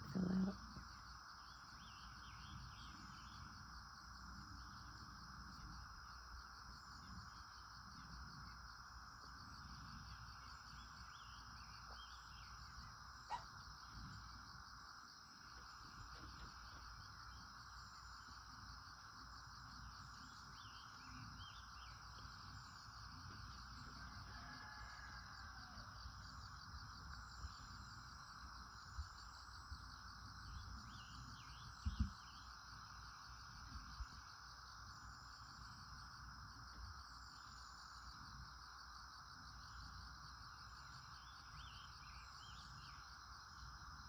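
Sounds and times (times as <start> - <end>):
faint bird chirps: 0.0 - 0.8, 9.5 - 14.6, 19.7 - 28.1, 30.3 - 32.6
insect trilling: 0.0 - 5.9, 9.4 - 26.2.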